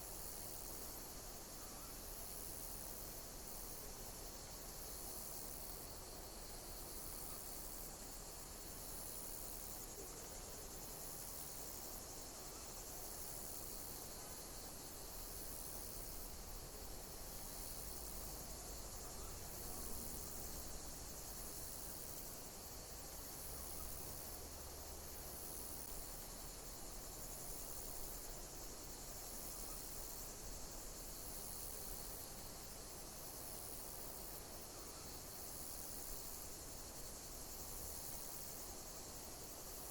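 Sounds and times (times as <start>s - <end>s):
insects chirping: 0.0s - 39.9s
steady background hiss: 0.0s - 39.9s.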